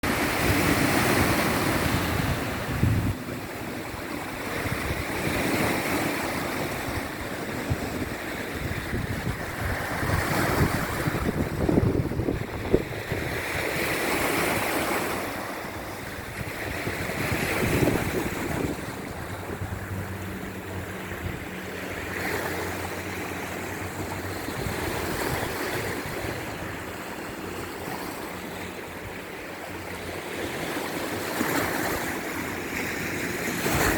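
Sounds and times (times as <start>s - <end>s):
sea waves breaking on shore: 0.0s - 33.9s
wind buffeting microphone: 0.0s - 33.9s.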